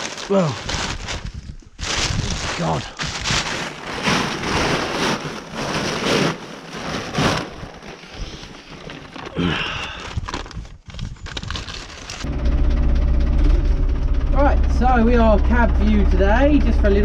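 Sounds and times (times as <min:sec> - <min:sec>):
sheet cover rustling and crinkling: 0:00.0 - 0:12.3.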